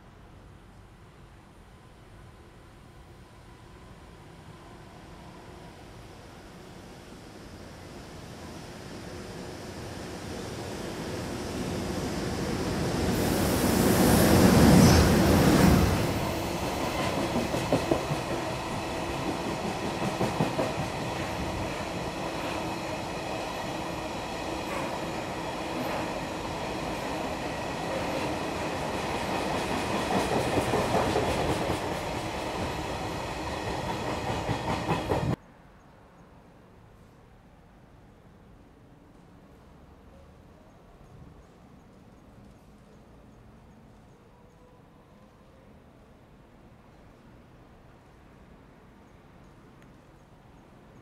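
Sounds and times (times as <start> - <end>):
electric locomotive passing: 1.8 - 35.5.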